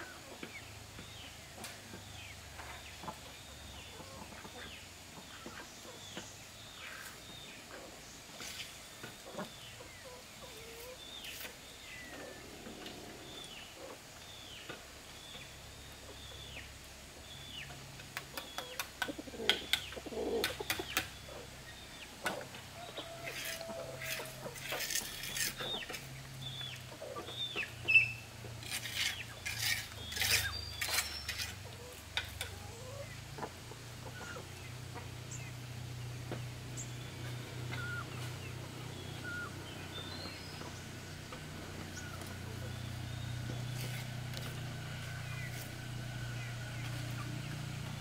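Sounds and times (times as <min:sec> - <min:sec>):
bird chirping: 0:00.0 - 0:48.0
chicken clucking: 0:18.3 - 0:21.5, 0:22.2 - 0:26.0, 0:31.6 - 0:35.5
clicks and scrapes of hand work: 0:23.3 - 0:26.1, 0:28.6 - 0:31.6.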